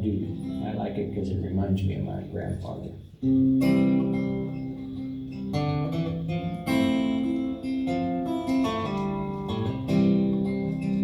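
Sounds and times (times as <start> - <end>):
acoustic guitar strumming chords: 2.4 - 11.0.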